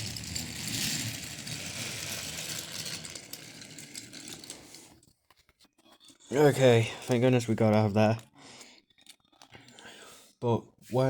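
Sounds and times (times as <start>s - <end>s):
toy train rattling and humming: 0.0s - 5.1s.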